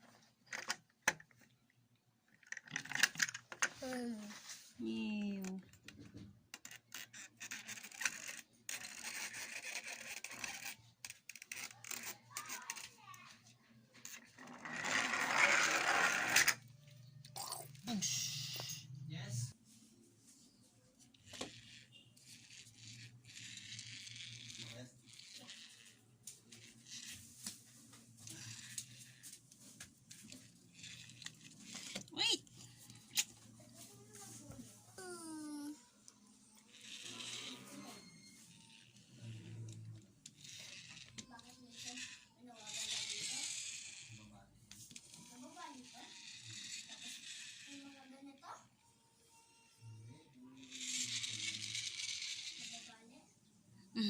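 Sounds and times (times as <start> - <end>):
plastic toy vehicles scraping: 6.1 - 17.1, 20.4 - 35.7, 36.4 - 48.7, 50.6 - 53.3.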